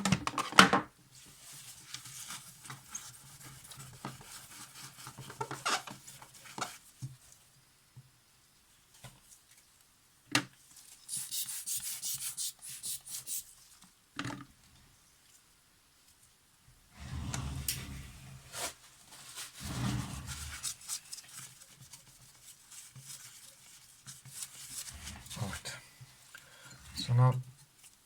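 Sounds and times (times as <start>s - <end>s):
wiping strokes on mirror: 17.0s - 18.7s, 19.5s - 21.1s.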